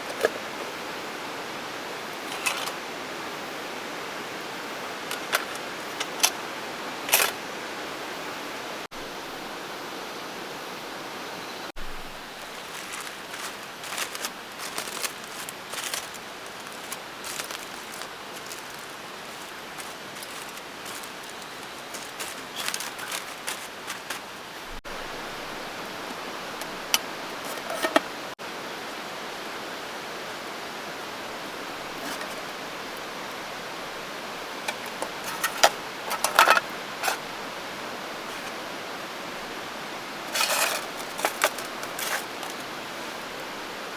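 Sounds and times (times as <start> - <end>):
camp cookware clicking and knocking: 0.0 - 0.8, 2.2 - 2.9, 4.9 - 7.4, 19.8 - 24.8, 26.0 - 28.2, 32.0 - 32.5, 34.6 - 37.3, 38.2 - 38.6, 40.3 - 42.6
steady hiss: 0.0 - 43.9.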